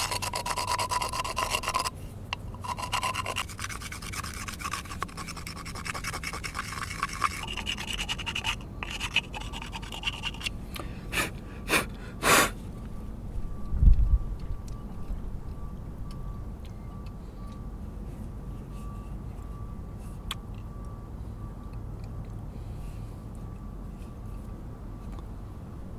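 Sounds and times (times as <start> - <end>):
rasping against rough surface: 0.0 - 10.5.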